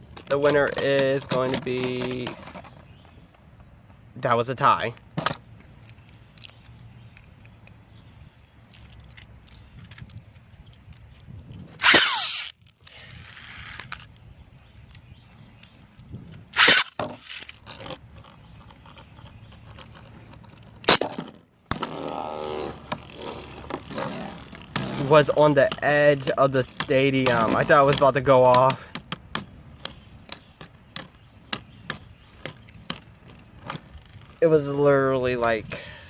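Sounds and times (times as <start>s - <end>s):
spinning tops whirring: 11.8s - 12.5s
spinning tops scraping: 11.8s - 14.1s, 16.6s - 17.6s.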